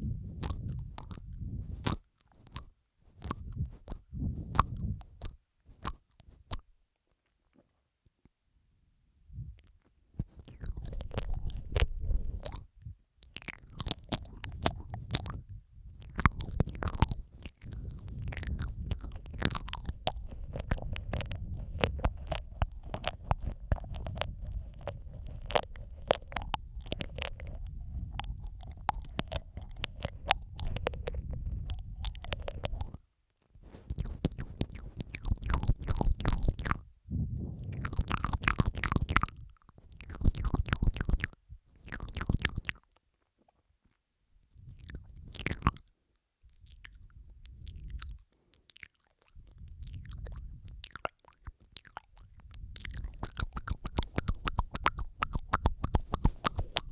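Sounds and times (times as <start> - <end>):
asmr mouth clicks and smacks: 0.0 - 8.4, 9.4 - 43.6, 44.4 - 56.9
low rumble: 17.7 - 33.0, 36.8 - 38.4.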